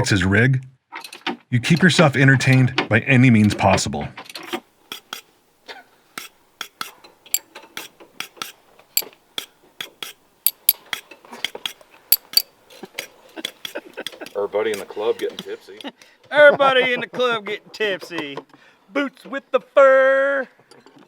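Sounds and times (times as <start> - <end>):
metal tools clinking: 10.5 - 10.8, 12.1 - 12.5.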